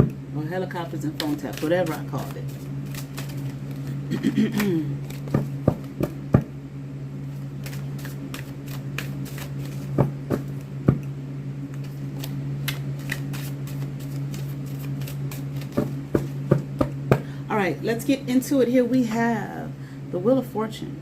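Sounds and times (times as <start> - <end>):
cards being shuffled: 0.8 - 6.4, 7.3 - 11.0, 11.7 - 17.0.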